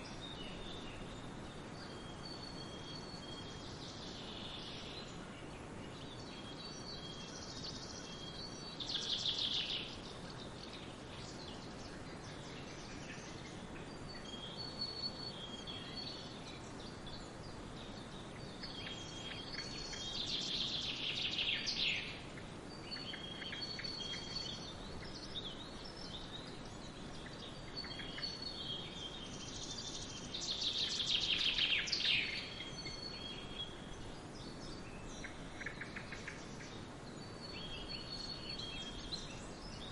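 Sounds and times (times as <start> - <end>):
bird trilling song: 0.0 - 39.9
forest ambience rush: 0.0 - 39.9.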